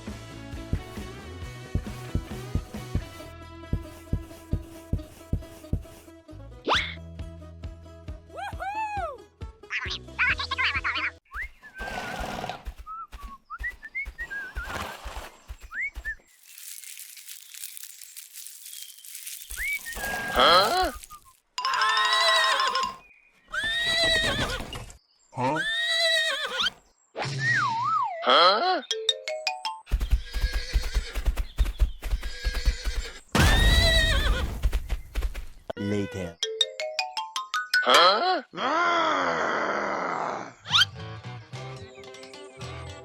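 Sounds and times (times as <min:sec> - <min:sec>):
horse hooves clip-clopping: 0:00.7 - 0:01.1, 0:01.7 - 0:06.1, 0:11.8 - 0:23.0, 0:29.9 - 0:35.8
whistled notes: 0:11.3 - 0:11.9, 0:12.8 - 0:14.8, 0:19.5 - 0:21.4
horse whinnying: 0:11.8 - 0:12.7, 0:21.6 - 0:24.8, 0:25.5 - 0:26.8, 0:32.2 - 0:34.5.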